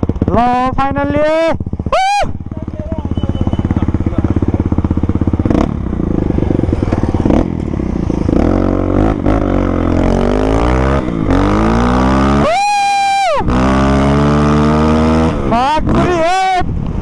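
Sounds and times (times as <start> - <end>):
dirt bike engine accelerating: 0.0 - 17.0.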